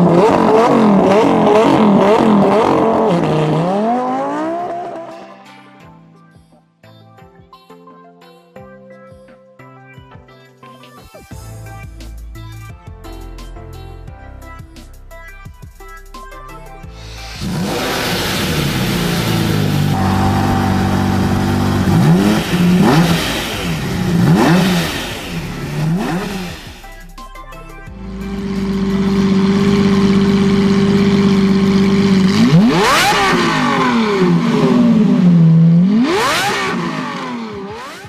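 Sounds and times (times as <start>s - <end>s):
car engine idling and revving: 0.0s - 5.2s, 17.0s - 38.0s.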